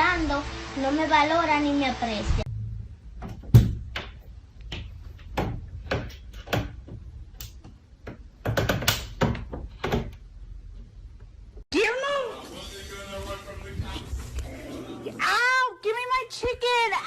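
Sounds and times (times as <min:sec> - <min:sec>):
sharp knocks and taps: 0:03.2 - 0:10.2.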